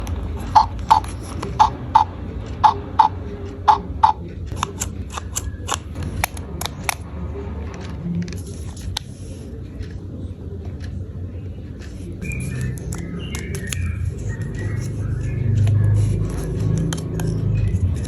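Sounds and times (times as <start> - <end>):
plastic toy parts clicking: 3.7 - 7.0, 15.5 - 18.0.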